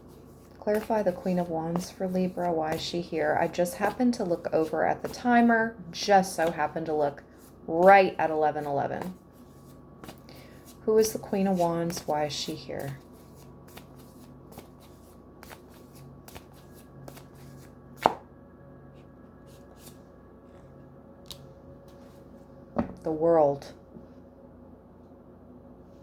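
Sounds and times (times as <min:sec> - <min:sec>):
faint steady hum: 0:00.0 - 0:26.0
cards being shuffled by hand: 0:08.6 - 0:18.2, 0:19.0 - 0:20.7.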